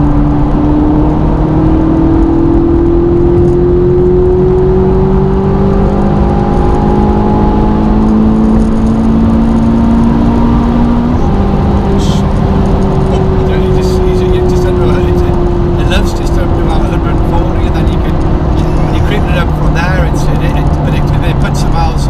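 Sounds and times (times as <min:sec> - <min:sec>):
sports car engine accelerating: 0:00.0 - 0:22.0.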